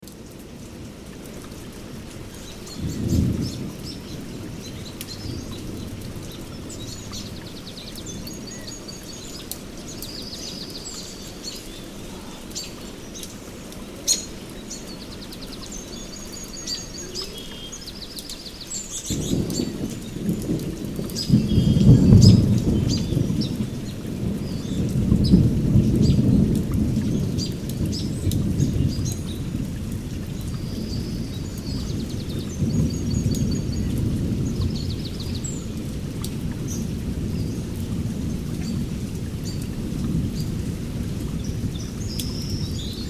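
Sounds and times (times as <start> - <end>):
steady rain: 0.0 - 43.0
thunder rumbling: 2.2 - 8.7, 19.0 - 43.0
birds calling and trilling: 2.3 - 29.5.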